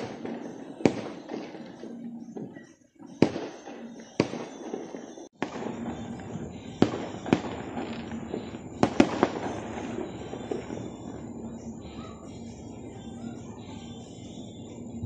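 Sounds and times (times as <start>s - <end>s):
fireworks bangs echoing: 0.0s - 12.5s
fireworks crackling: 3.1s - 13.2s.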